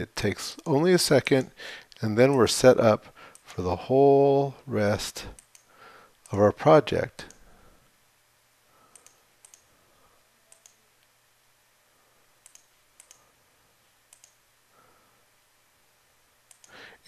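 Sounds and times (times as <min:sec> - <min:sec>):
computer mouse clicks: 0:05.4 - 0:06.4, 0:08.9 - 0:09.7, 0:10.5 - 0:10.8, 0:12.4 - 0:13.3, 0:14.1 - 0:14.4, 0:16.5 - 0:16.8.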